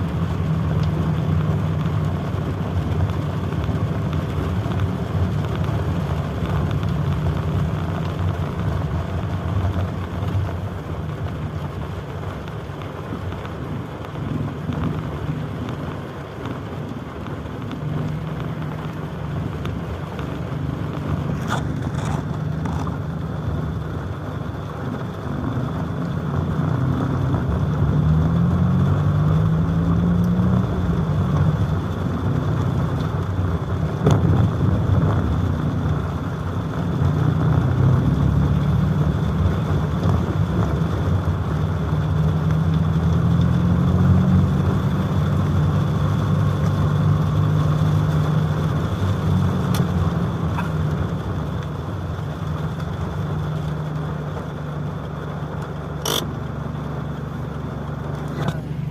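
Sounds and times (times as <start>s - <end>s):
vehicle engines running: 0.0s - 58.9s.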